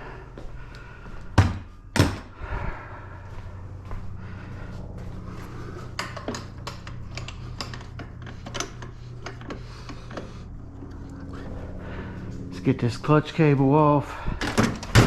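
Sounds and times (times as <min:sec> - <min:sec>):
steady low hum: 0:00.0 - 0:15.0
hand tools clicking on metal: 0:05.9 - 0:10.3.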